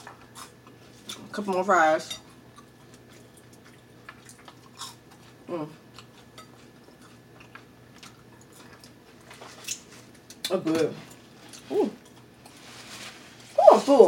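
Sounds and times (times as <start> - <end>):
chewing fries: 0.0 - 13.9
person humming: 5.5 - 5.8, 11.7 - 12.0.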